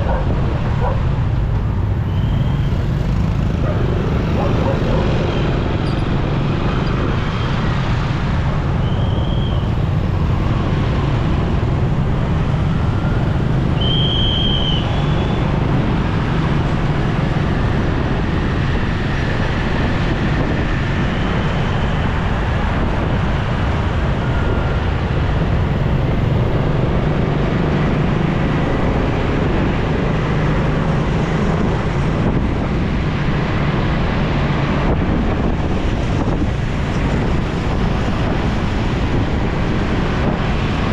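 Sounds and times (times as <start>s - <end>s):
motorcycle engine: 0.0s - 7.4s
traffic rumble: 0.0s - 40.9s.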